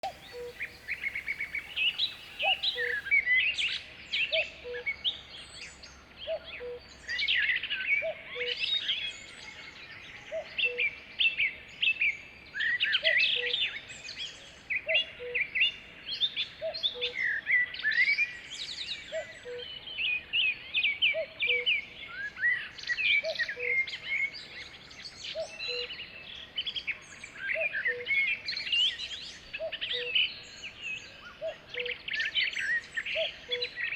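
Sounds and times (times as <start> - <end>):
songbirds chirping and trilling: 0.0 - 13.4.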